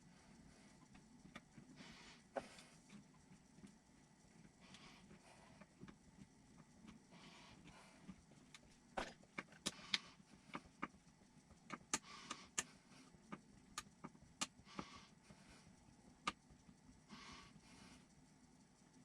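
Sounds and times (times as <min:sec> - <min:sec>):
small parts clicking and tapping: 0:02.8 - 0:15.1.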